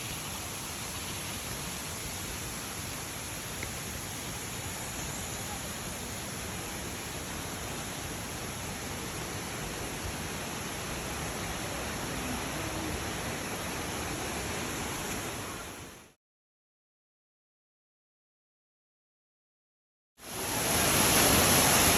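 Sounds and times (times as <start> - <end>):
waterfall rushing: 0.0 - 15.7, 20.2 - 21.9.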